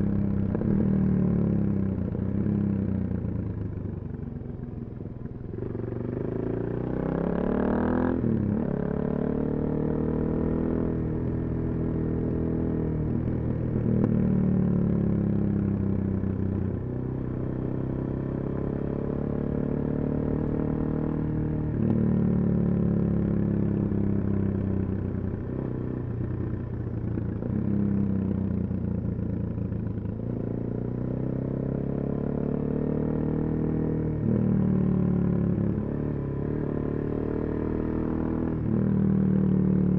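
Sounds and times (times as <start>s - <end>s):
motorcycle engine revving: 5.6s - 11.0s, 27.2s - 39.9s.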